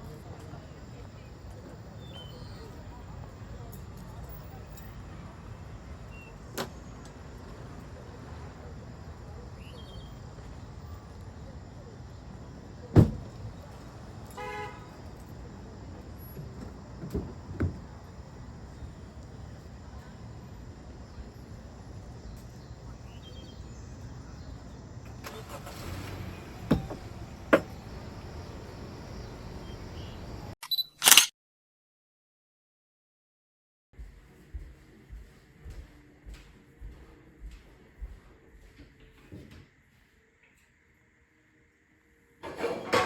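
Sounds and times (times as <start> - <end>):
vehicle low rumble: 0.0 - 30.6
sharp thumps: 26.6 - 28.0.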